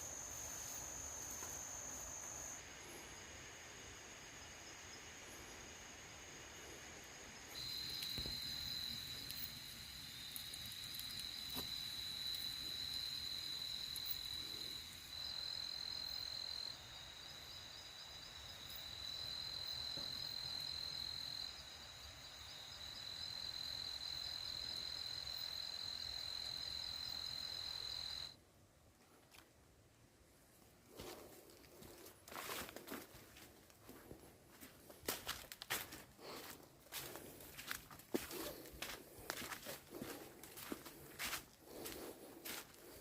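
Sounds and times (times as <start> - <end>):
crickets trilling: 0.0 - 28.4.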